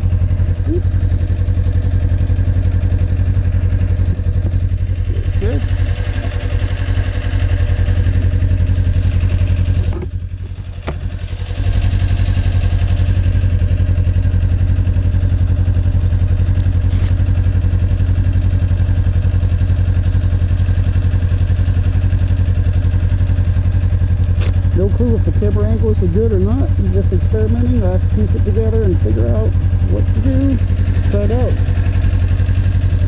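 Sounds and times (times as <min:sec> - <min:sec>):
motorcycle engine idling: 0:00.0 - 0:33.0
sharp handling clicks: 0:24.2 - 0:24.6.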